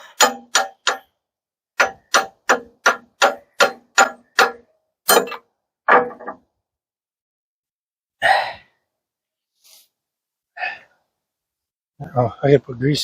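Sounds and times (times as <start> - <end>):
hammer striking metal pin: 0.0 - 1.1, 1.8 - 6.4.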